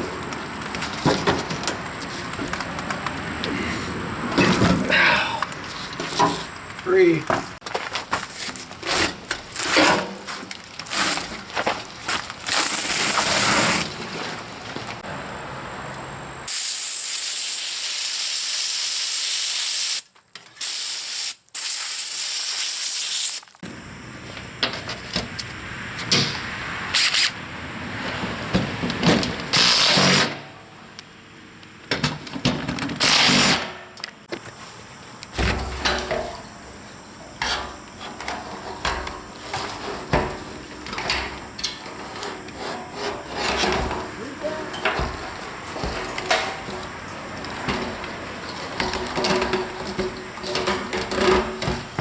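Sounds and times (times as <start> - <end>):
pressurised hissing spray: 16.5 - 20.0, 20.6 - 23.5
tools clattering: 37.3 - 52.0.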